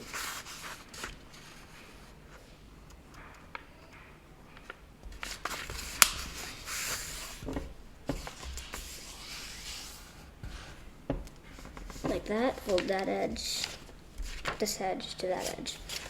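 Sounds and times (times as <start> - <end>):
paper folding and rustling: 0.0 - 2.6, 4.5 - 16.0
paper snap: 4.6 - 7.0.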